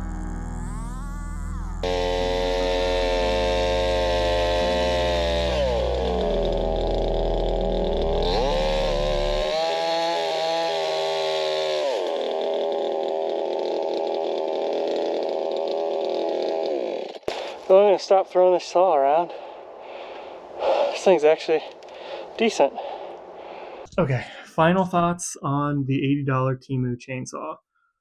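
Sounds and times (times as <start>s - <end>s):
chainsaw running at high revs: 1.8s - 17.7s.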